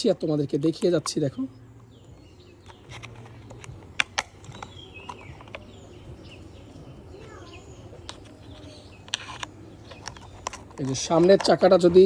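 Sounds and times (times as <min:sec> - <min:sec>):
birds chirping: 0:00.0 - 0:12.0
toy truck wheels clicking: 0:08.1 - 0:12.0.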